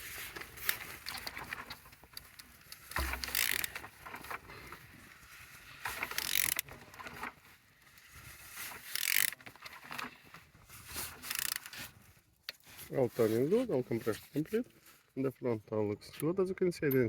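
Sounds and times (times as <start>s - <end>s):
wrench ratcheting engine crankshaft: 2.9s - 3.8s, 6.0s - 6.7s, 8.8s - 9.4s, 11.2s - 11.8s.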